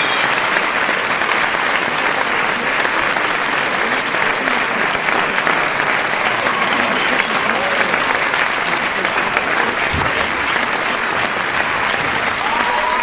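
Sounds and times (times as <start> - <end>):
crowd clapping: 0.0 - 13.0.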